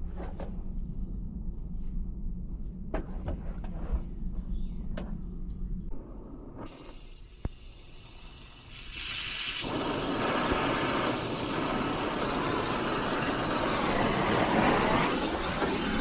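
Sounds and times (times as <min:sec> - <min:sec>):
torch flame hissing: 0:06.7 - 0:16.0.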